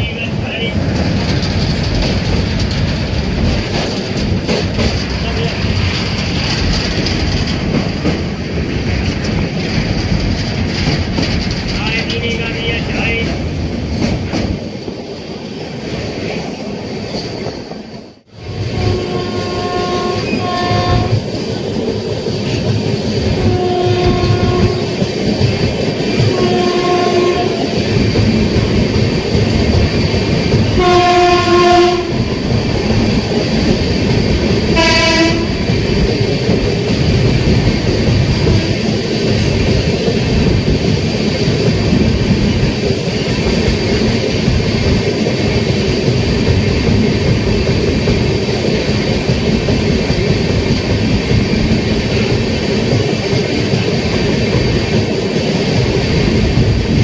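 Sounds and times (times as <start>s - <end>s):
train wheels rumbling on track: 0.0s - 57.0s
locomotive horn: 18.4s - 21.2s, 23.4s - 24.9s, 26.3s - 27.6s, 30.8s - 32.3s, 34.8s - 35.6s.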